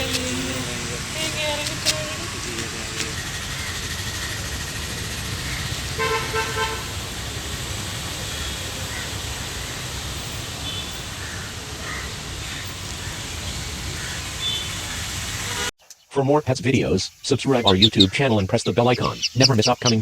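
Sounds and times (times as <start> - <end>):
outdoor background noise: 0.0 - 20.0
short horn toots: 5.5 - 13.4.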